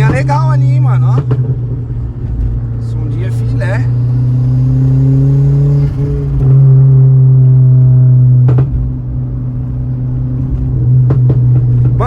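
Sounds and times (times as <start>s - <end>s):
car engine drone from cabin: 0.0s - 12.0s
sharp exhaust pop: 8.4s - 9.2s.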